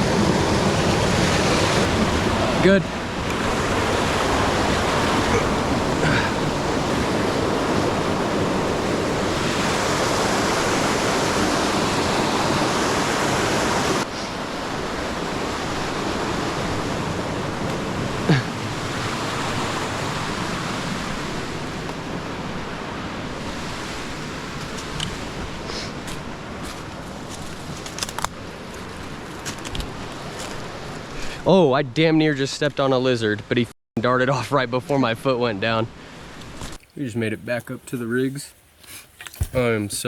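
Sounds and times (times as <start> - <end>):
waterfall rushing: 0.0 - 14.1.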